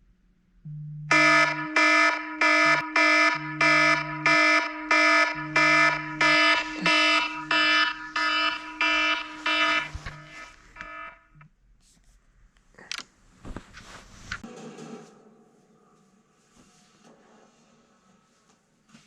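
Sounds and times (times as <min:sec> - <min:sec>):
steady underlying tone: 0:00.6 - 0:11.4
electronic alarm beeping: 0:00.7 - 0:11.5.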